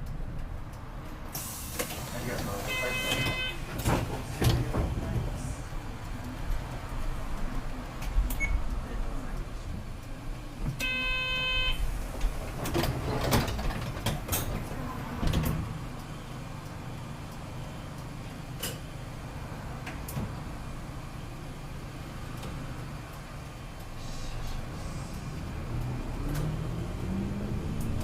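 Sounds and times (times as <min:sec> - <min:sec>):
bus doors closing with clunks: 0:00.0 - 0:28.0
bus engine humming: 0:00.0 - 0:28.0.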